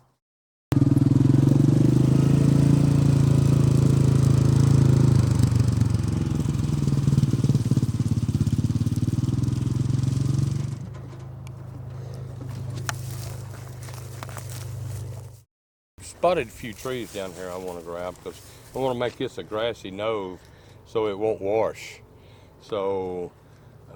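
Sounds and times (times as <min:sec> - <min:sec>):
engine running loud: 0:00.7 - 0:15.4.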